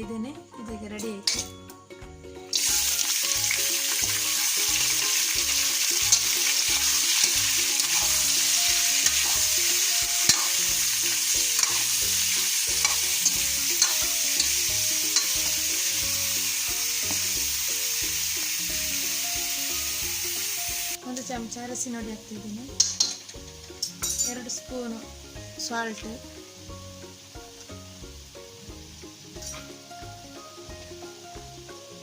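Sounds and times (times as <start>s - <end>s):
chicken frying in oil: 2.5s - 21.0s
spoon clicking against pan: 10.2s - 10.6s, 11.5s - 12.0s, 12.8s - 15.4s, 22.8s - 24.3s.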